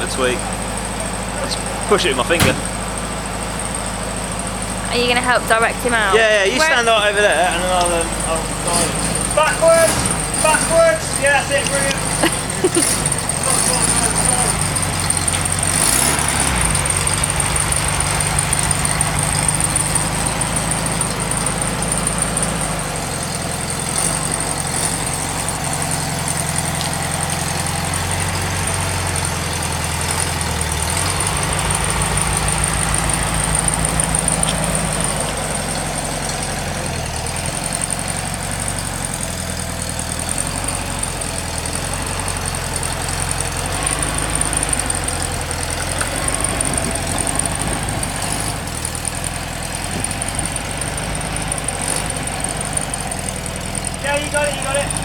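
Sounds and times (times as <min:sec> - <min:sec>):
air-cooled car engine running: 0:00.0 - 0:55.0.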